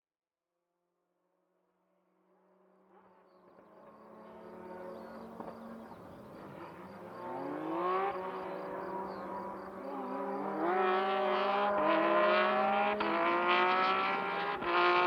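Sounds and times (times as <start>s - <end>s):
rally car engine buzzing: 3.0s - 15.0s.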